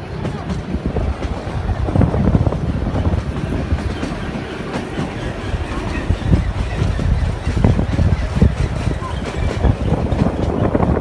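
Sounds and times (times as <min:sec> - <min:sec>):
train carriages rumbling on track: 0:00.0 - 0:11.0
wheels knocking: 0:00.1 - 0:11.0.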